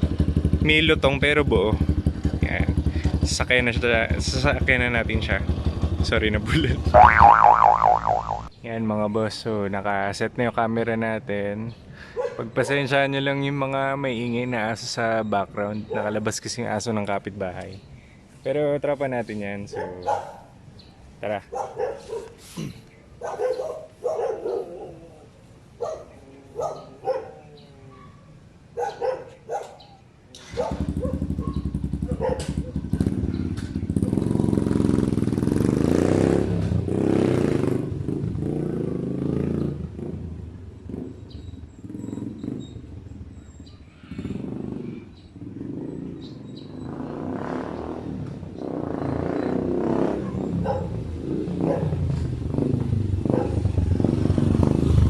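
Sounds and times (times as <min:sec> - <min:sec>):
motorcycle engine revving: 0:04.1 - 0:08.5, 0:30.7 - 0:43.4, 0:44.2 - 0:55.0
dog barking: 0:12.2 - 0:12.4, 0:15.9 - 0:16.2, 0:19.7 - 0:20.5, 0:21.5 - 0:22.4, 0:23.2 - 0:25.0, 0:25.8 - 0:32.8, 0:50.2 - 0:51.0, 0:51.6 - 0:52.0, 0:53.3 - 0:53.6.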